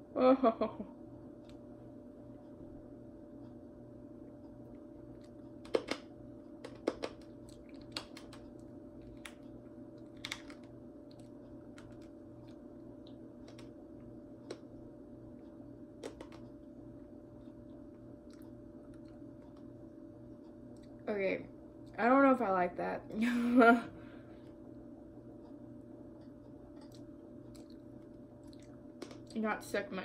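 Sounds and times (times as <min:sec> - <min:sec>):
steady low hum: 0:00.0 - 0:30.0
crunchy chewing of dry pasta: 0:06.6 - 0:14.8, 0:26.4 - 0:29.4.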